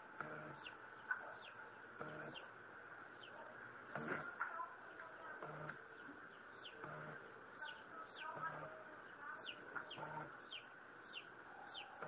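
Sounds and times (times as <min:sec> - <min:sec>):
high bird chirps: 0:00.2 - 0:02.5, 0:04.9 - 0:12.0.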